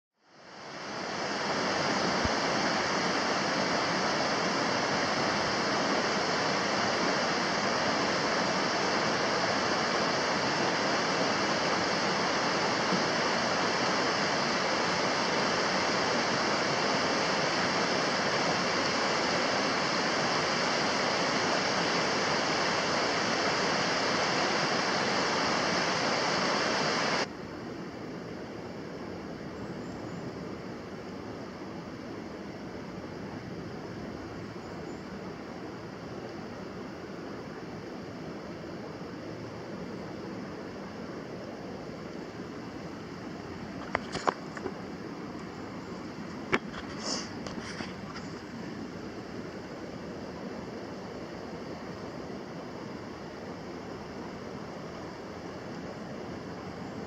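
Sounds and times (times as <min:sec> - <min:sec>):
mountain stream rushing: 0:00.3 - 0:27.3, 0:30.6 - 0:57.0.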